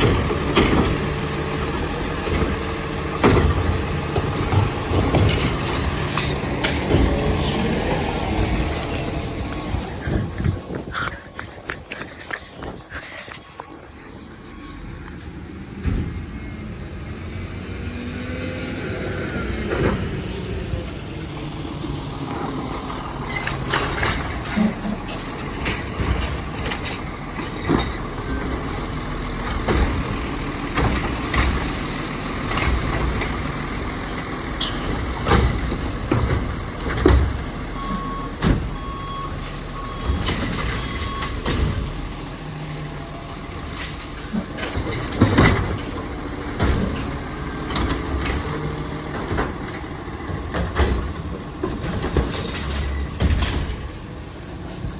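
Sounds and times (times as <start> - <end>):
diesel engine running and revving: 0.0 - 54.9
short beeps: 37.8 - 40.2.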